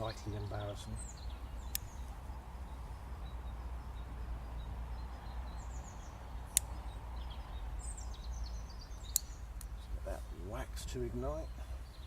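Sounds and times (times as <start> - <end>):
bird chirping: 0.0 - 12.0
sharp click: 6.5 - 6.8, 9.0 - 9.7.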